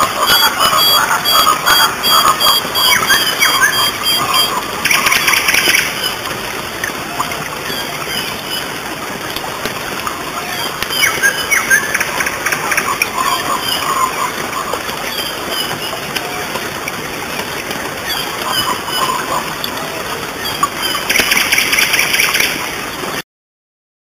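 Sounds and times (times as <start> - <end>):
fast bird trill: 0.0 - 6.2
birds chirping: 0.0 - 8.9, 9.8 - 23.1
background hiss: 0.0 - 23.2.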